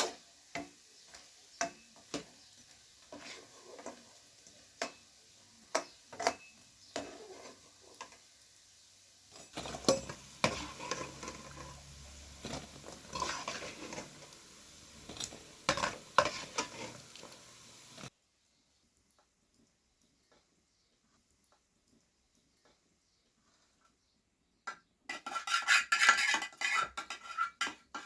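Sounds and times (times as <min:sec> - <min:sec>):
metal utensils clinking on cookware: 0:00.0 - 0:08.3, 0:09.3 - 0:18.1, 0:25.1 - 0:28.0
steady hiss: 0:06.8 - 0:18.1.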